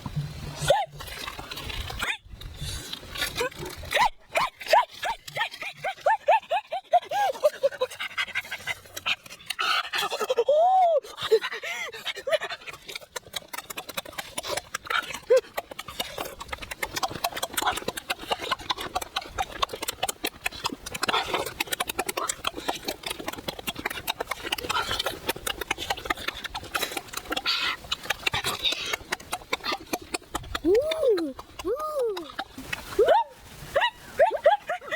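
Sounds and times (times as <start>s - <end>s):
person chewing and smacking: 11.9s - 33.0s.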